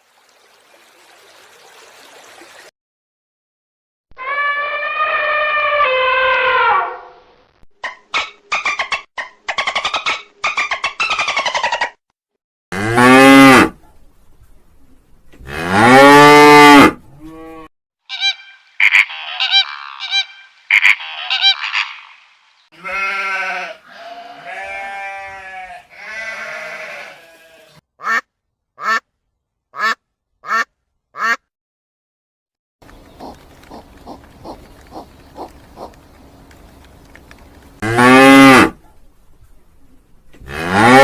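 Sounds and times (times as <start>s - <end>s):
farm animal calls: 17.2s - 28.2s, 33.0s - 36.1s.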